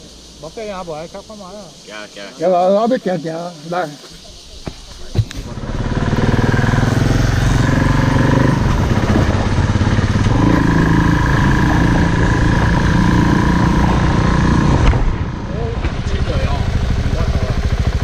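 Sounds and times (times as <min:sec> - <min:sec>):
motorcycle engine under throttle: 0:05.4 - 0:18.0.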